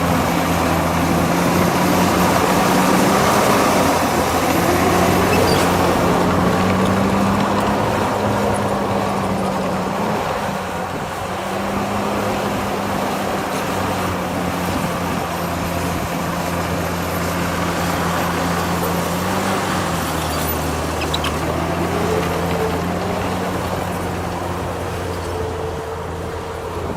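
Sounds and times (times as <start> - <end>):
heavy diesel engine running: 0.0 - 26.9.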